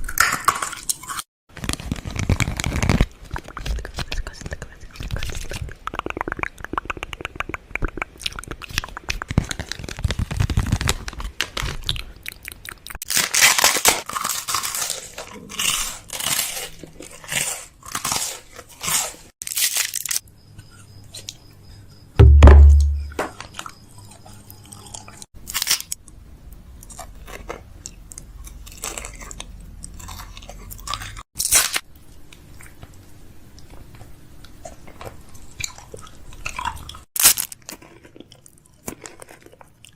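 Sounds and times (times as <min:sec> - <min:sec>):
mouth clicks: 0:03.4 - 0:09.6
loud low thump: 0:22.2 - 0:23.2.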